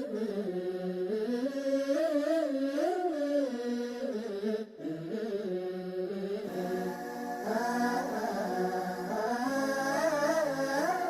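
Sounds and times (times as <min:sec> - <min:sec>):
chant-like singing voice: 0:00.0 - 0:11.0
background music: 0:06.5 - 0:11.0.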